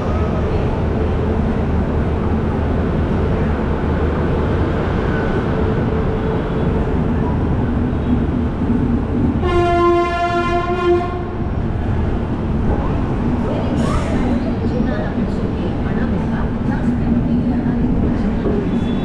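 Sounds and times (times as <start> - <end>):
steady train rumble: 0.0 - 19.0
locomotive horn blast: 9.4 - 11.4.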